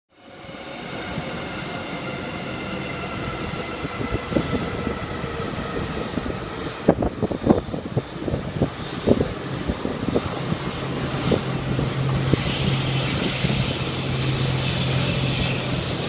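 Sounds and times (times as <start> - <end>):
diesel locomotive engine drone: 0.1 - 16.0
high whine: 10.0 - 16.0.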